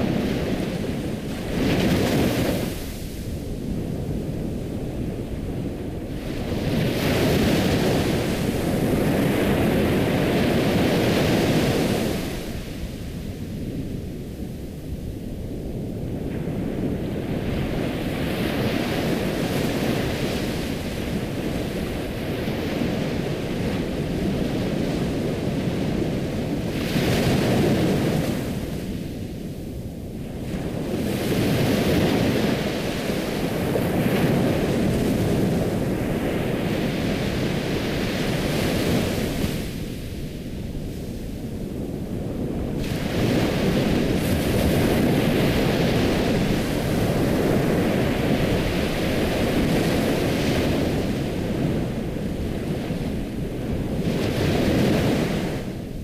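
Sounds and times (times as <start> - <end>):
ocean waves breaking: 42.3 - 56.0.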